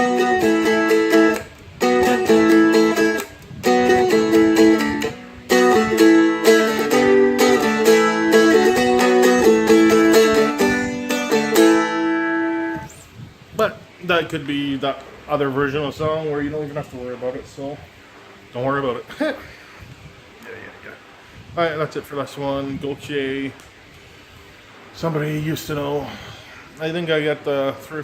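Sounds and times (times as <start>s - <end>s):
acoustic guitar strummed chords: 0.0s - 12.9s.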